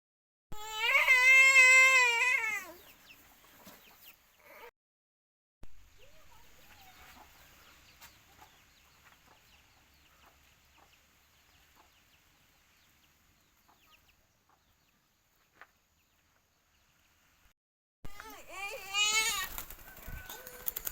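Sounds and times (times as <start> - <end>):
poultry chirping: 2.7 - 4.6, 6.1 - 16.9.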